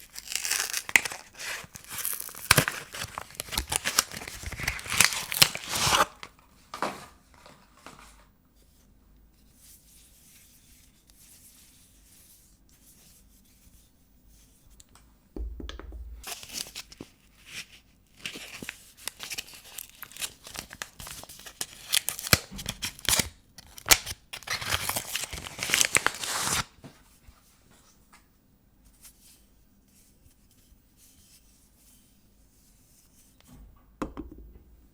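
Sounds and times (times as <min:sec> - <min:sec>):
paper wrapping tearing: 0:00.0 - 0:06.2, 0:16.2 - 0:26.7.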